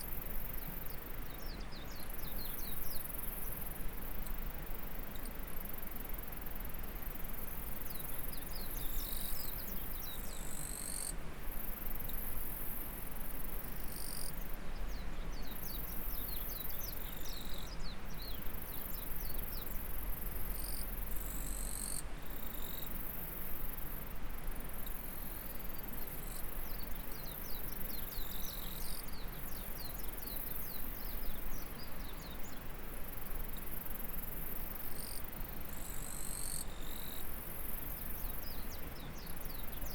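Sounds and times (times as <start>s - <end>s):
insects trilling: 33.1s - 38.6s.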